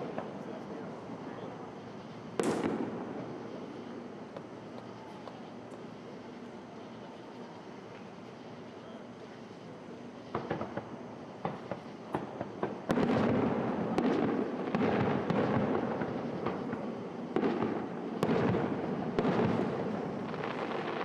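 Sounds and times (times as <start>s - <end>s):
rumble of fireworks bursts: 0.0s - 21.0s
fireworks crackling pops: 2.3s - 5.9s, 10.3s - 21.0s
loud fireworks bangs: 2.4s - 3.8s, 10.3s - 21.0s.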